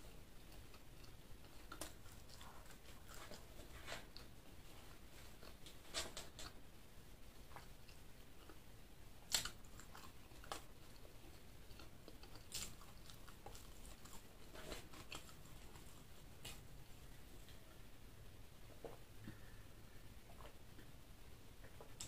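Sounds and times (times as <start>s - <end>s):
person chewing crunchy food: 9.3s - 16.6s.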